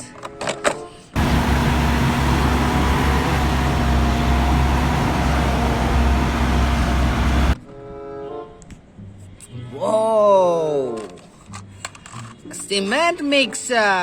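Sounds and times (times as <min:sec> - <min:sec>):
steady tones: 0:01.2 - 0:07.6
vehicle engine rumble: 0:01.2 - 0:07.6.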